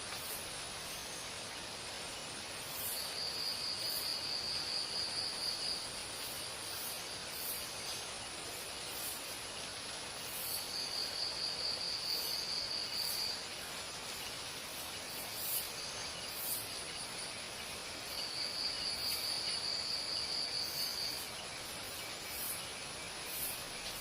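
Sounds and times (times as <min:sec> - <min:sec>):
high-pitched insect whine: 0:00.0 - 0:24.0
insect pulsed trill: 0:14.1 - 0:24.0.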